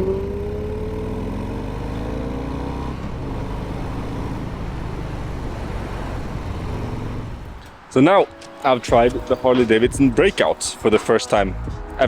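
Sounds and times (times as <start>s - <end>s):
motorcycle engine running: 0.0s - 7.6s
wind and road noise: 0.0s - 12.0s.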